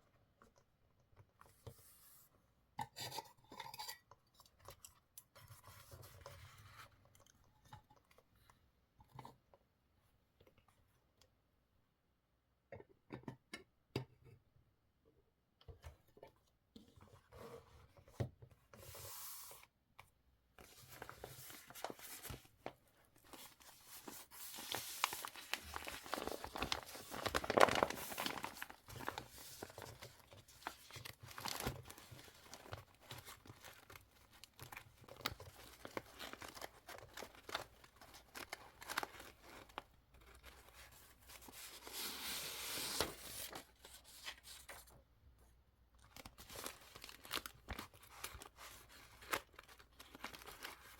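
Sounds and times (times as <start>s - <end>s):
paper tearing and crinkling: 23.4s - 30.1s.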